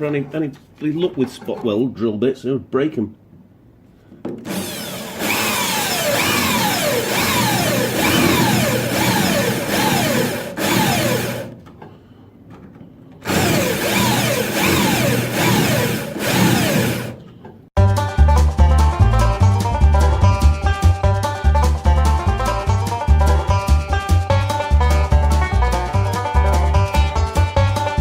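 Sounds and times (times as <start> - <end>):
drill bit squealing: 4.5 - 11.5, 13.2 - 17.2
power drill cutting steel: 4.5 - 11.5, 13.2 - 17.2.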